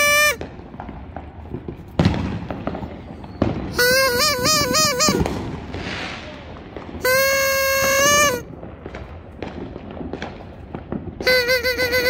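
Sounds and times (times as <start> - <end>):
shrill warbling horn-like tone: 0.0 - 0.4, 3.7 - 5.4, 7.0 - 8.4, 11.2 - 12.0
sharp bangs: 3.5 - 8.5.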